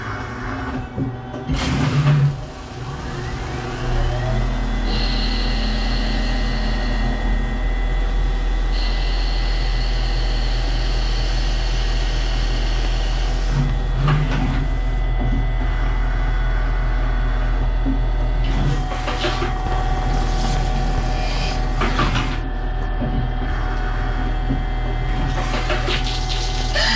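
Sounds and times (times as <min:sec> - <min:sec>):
low machine hum: 0:00.0 - 0:26.9
lathe spindle whine: 0:02.4 - 0:25.8
higher machine tone: 0:02.9 - 0:11.6.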